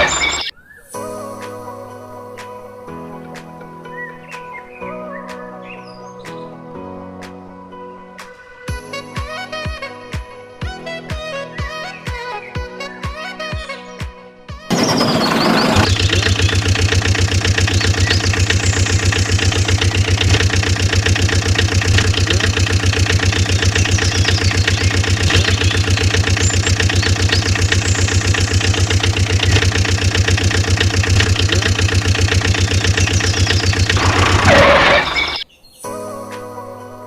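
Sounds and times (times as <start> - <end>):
small engine chugging: 0.0 - 0.5, 14.7 - 35.4.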